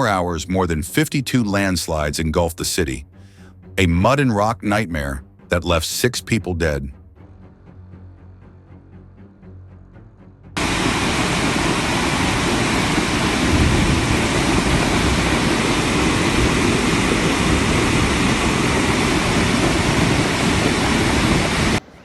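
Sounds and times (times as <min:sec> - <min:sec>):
loud steady rushing noise: 0:10.6 - 0:22.0.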